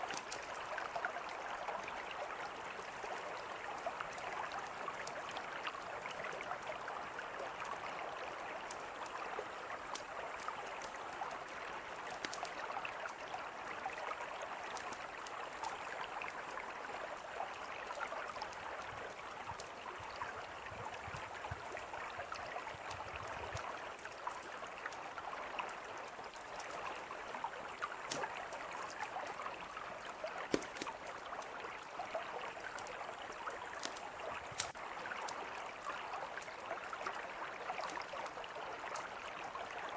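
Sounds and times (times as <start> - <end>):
river flowing: 0.0 - 39.9
campfire popping and crackling: 12.0 - 12.7, 30.4 - 31.4, 32.7 - 34.8.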